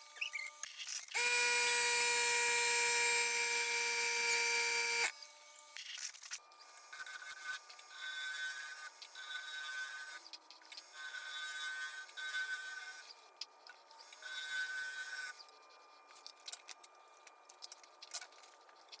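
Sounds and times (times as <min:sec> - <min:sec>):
power tool whining: 0:00.0 - 0:05.8.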